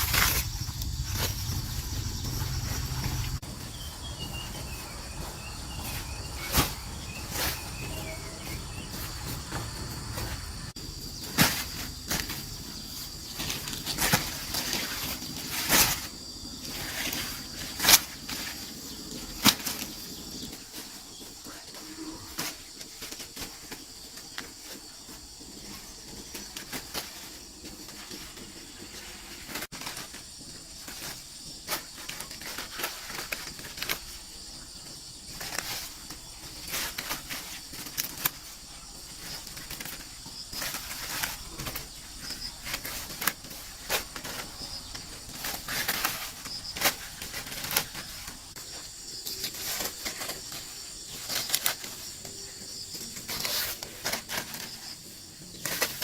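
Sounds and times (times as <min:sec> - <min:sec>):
insects droning: 0:00.0 - 0:56.0
rustling: 0:00.0 - 0:56.0.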